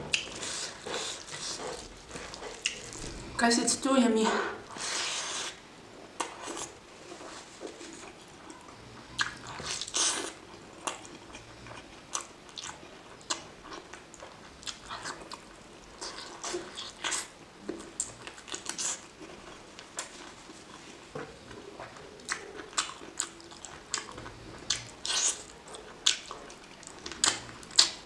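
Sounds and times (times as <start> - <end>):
wet chewing: 0.1 - 3.3, 21.5 - 28.0.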